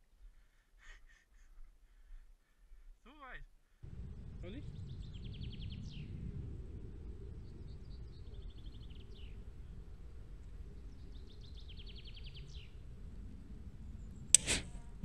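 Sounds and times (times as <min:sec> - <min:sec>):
low outdoor rumble: 0:03.8 - 0:15.0
songbird singing: 0:03.9 - 0:14.5.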